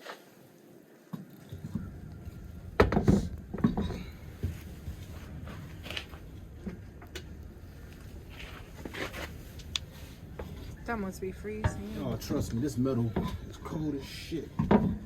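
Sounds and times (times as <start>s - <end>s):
low steady rumble: 1.7s - 15.0s
metal knocks and clatter: 14.6s - 15.0s.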